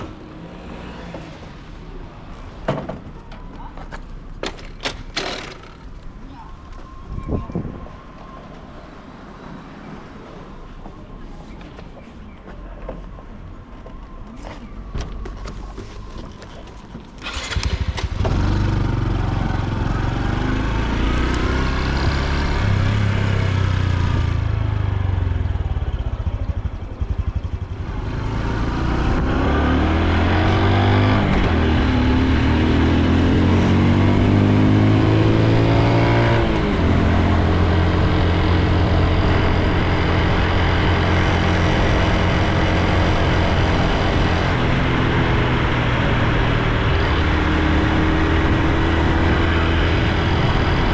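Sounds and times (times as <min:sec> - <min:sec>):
motorcycle engine running: 0:17.2 - 0:29.2.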